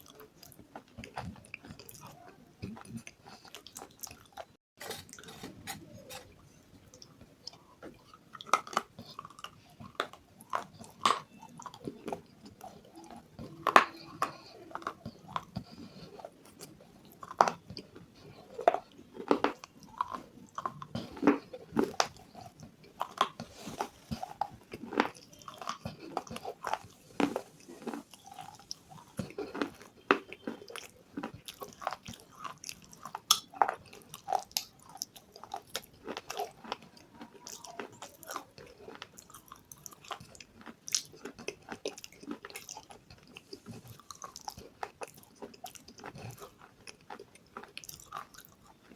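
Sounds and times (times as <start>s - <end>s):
person chewing crunchy food: 0.0s - 48.9s.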